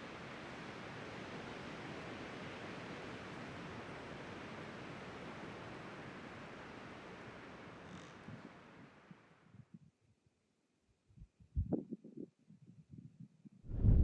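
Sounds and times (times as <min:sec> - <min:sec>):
wind blowing across microphone: 0:11.2 - 0:14.0.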